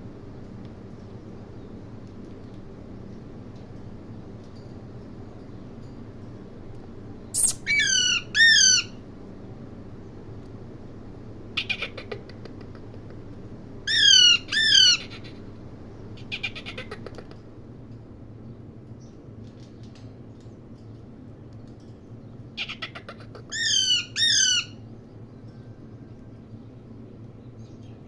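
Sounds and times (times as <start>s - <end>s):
parrot chattering: 7.4s - 9.0s, 11.6s - 13.1s, 13.9s - 15.4s, 16.2s - 17.3s, 22.6s - 24.8s
parrot squawking: 7.4s - 9.0s, 11.6s - 12.3s, 13.9s - 15.4s, 22.6s - 24.8s.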